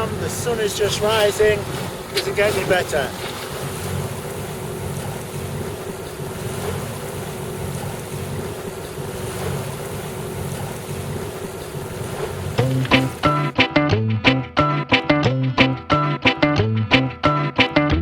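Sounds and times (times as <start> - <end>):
steady low hum: 0.0 - 13.6
water washing along a hull: 0.0 - 13.6
music: 12.6 - 18.0.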